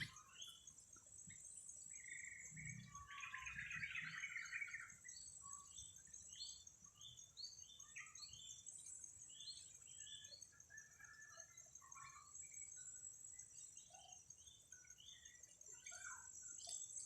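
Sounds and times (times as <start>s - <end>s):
bird chirping notes: 0.0s - 0.7s.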